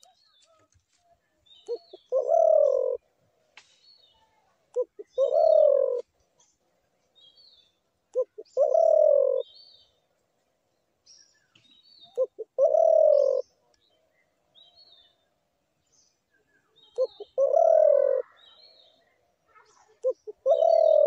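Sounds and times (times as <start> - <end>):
small birds chirping: 0.0 - 21.0
dove cooing: 1.7 - 3.0, 4.7 - 6.1, 8.1 - 9.6, 12.1 - 13.5, 16.9 - 18.6, 19.9 - 21.0.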